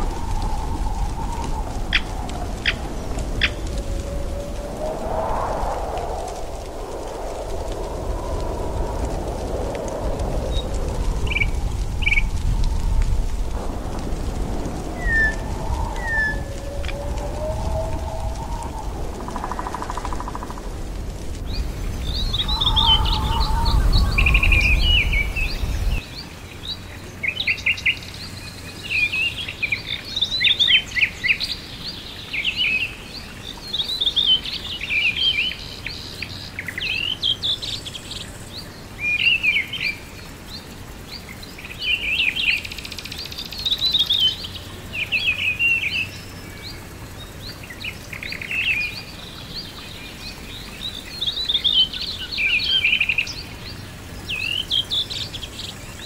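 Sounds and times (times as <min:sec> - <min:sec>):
low rumble: 0:00.0 - 0:26.0
faint steady hiss: 0:00.0 - 0:56.0
songbirds singing: 0:10.4 - 0:13.4, 0:14.2 - 0:56.0.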